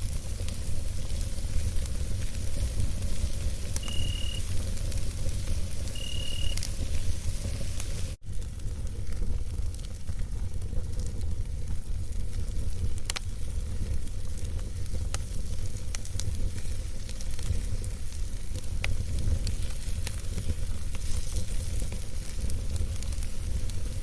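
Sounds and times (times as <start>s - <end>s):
campfire crackling and hissing: 0.0s - 24.0s
fire popping: 0.0s - 24.0s.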